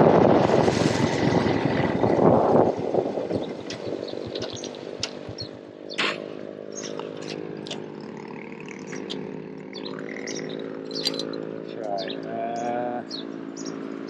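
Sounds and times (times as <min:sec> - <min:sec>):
motorbike engine idling: 0:02.9 - 0:14.0
sharp clicks and knocks: 0:03.6 - 0:05.4.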